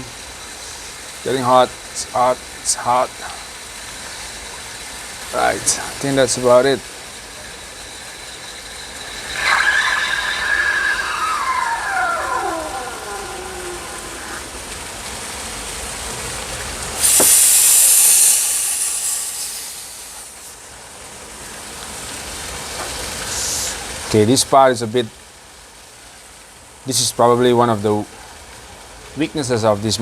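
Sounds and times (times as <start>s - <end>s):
steam wand hissing: 0.0s - 21.6s, 22.8s - 24.0s.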